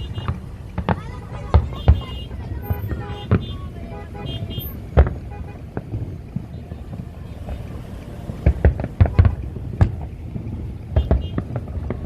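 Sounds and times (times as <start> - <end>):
fireworks bangs: 0.0 - 12.0
low background rumble: 0.0 - 12.0.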